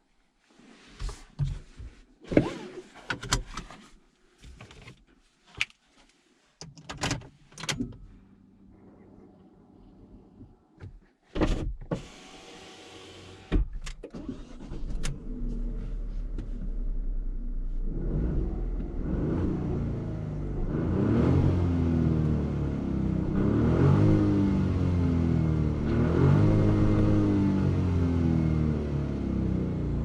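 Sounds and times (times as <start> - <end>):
car engine running: 15.2 - 30.0.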